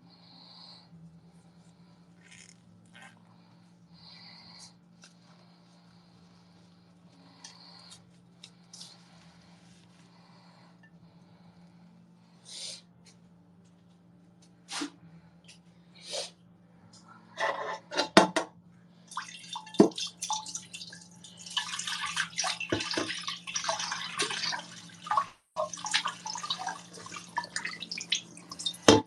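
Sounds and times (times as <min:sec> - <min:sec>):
steady low hum: 0:00.0 - 0:22.6
tap water running into sink: 0:19.3 - 0:29.0.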